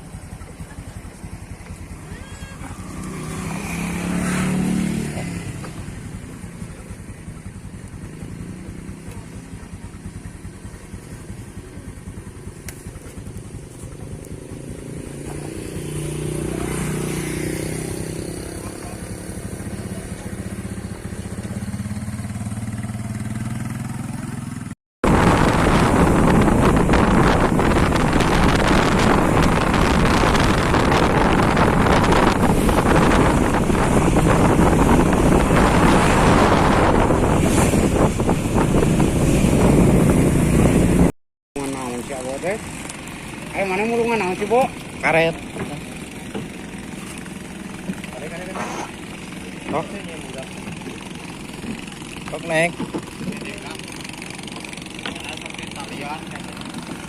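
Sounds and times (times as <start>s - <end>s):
motorcycle engine running: 0.0s - 57.0s
wind rushing over microphone: 25.0s - 41.1s.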